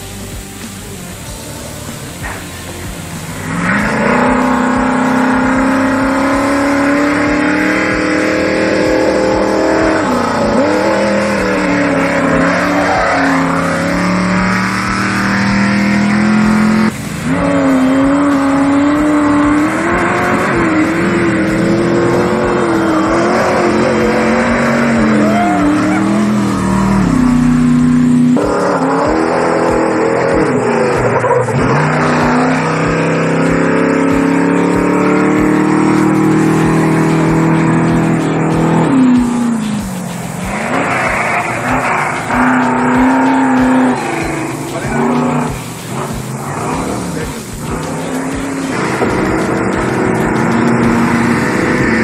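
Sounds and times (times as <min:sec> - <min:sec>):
race vehicle engines revving: 0:00.0 - 0:52.0.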